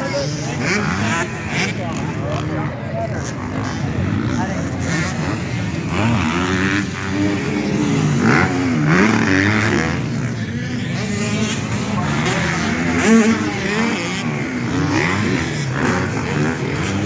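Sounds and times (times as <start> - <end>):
racing engines revving: 0.0 - 17.0.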